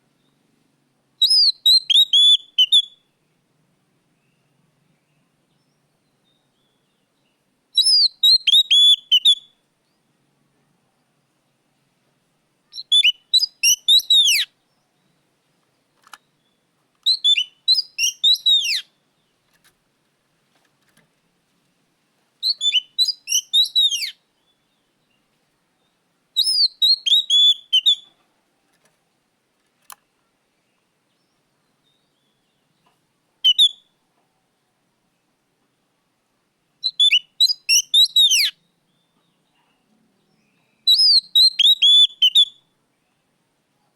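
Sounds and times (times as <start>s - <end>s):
bird whistling song: 1.2s - 3.1s, 7.8s - 9.6s, 12.7s - 14.6s, 16.4s - 18.9s, 22.4s - 24.6s, 26.4s - 28.1s, 33.4s - 33.9s, 36.8s - 39.2s, 40.5s - 42.7s.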